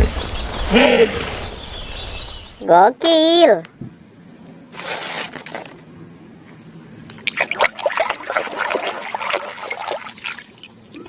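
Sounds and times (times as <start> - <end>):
rush of water: 7.1 - 11.0
water splashing and trickling: 7.1 - 11.0.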